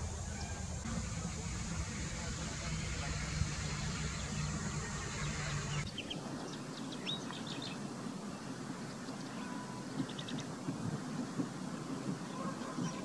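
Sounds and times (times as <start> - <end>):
noisy hum with low drone: 0.0 - 5.9
rising and falling bird call: 0.0 - 6.2.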